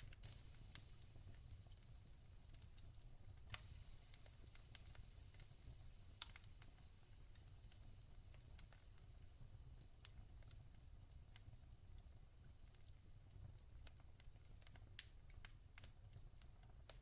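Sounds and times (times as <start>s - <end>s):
log fire crackling: 0.0s - 17.0s.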